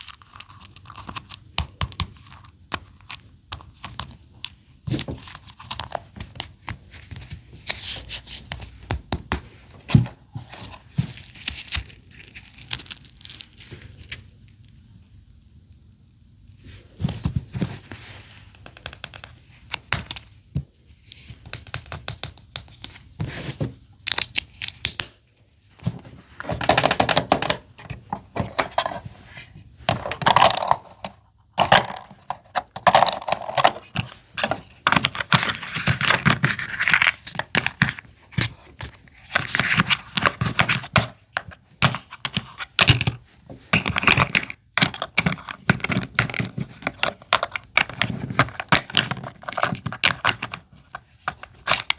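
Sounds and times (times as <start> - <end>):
plastic packaging tearing and crinkling: 10.9 - 14.3.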